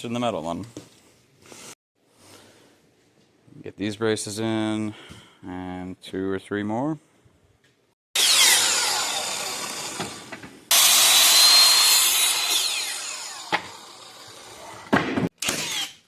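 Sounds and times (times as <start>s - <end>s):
power saw cutting wood: 8.2s - 16.0s.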